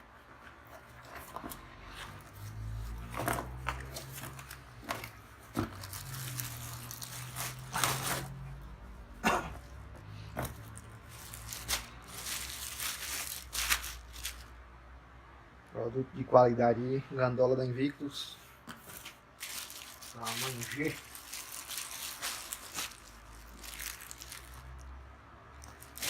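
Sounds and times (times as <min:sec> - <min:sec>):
plastic packaging crinkling and tearing: 0:01.0 - 0:08.4, 0:10.6 - 0:14.5, 0:19.0 - 0:24.9, 0:25.6 - 0:26.0.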